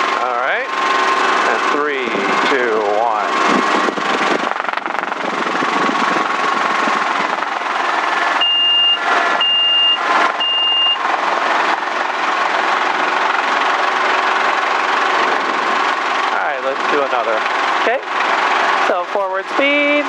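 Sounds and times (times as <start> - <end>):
helicopter engine and rotor: 0.0 - 20.0
high warning beeps: 8.4 - 11.0.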